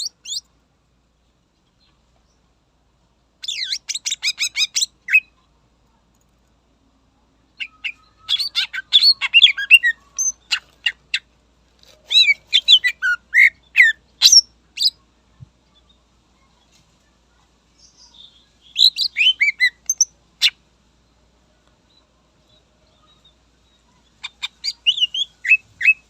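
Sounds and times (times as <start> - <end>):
bird singing high whistled notes: 18.7 - 20.1, 24.7 - 26.0.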